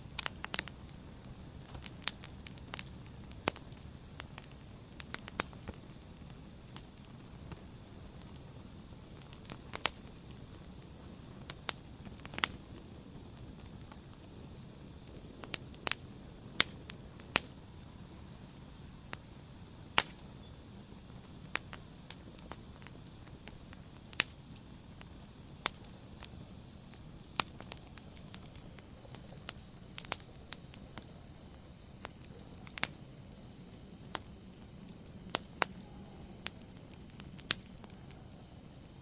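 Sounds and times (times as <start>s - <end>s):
fire hissing: 0.0s - 39.0s
wood fire crackling and popping: 0.0s - 39.0s.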